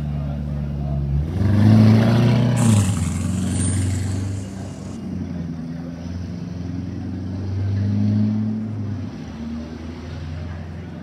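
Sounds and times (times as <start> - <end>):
car engine pulling away: 0.8 - 5.3.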